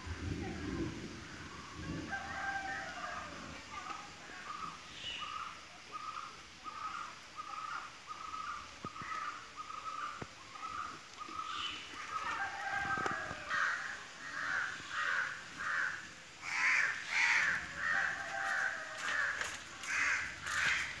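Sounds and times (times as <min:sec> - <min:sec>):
birds calling: 0:04.4 - 0:18.5.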